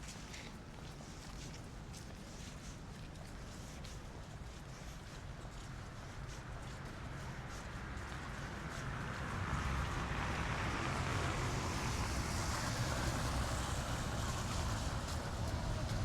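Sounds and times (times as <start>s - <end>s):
traffic rumble and hiss: 0.0s - 16.0s.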